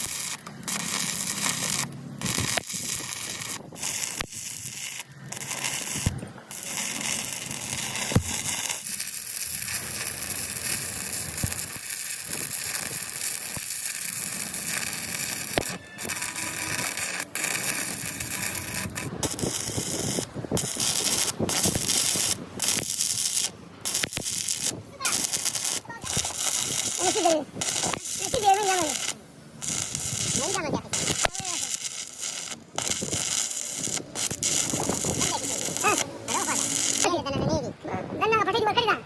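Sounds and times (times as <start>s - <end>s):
arc welding crackling: 0.0s - 37.4s.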